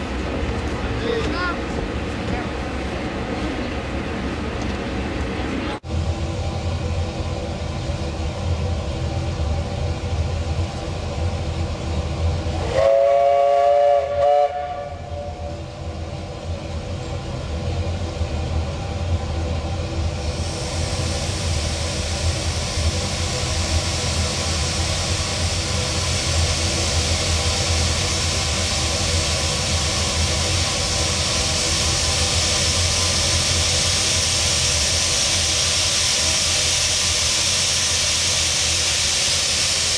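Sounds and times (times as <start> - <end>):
low rumble: 0.0 - 39.9
steam hissing: 9.3 - 39.9
steam locomotive whistle: 12.6 - 15.6.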